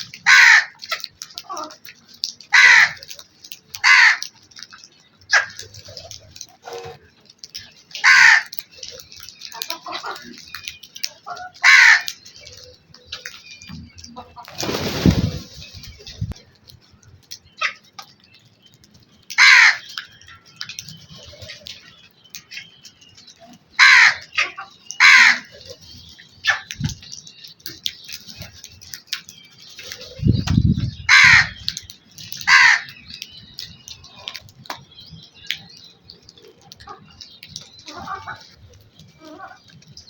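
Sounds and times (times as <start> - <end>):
crows cawing: 0.2 - 1.0, 2.5 - 3.1, 3.8 - 4.3, 8.0 - 8.6, 11.4 - 12.2, 19.4 - 20.0, 23.7 - 25.5, 31.1 - 31.6, 32.4 - 33.0.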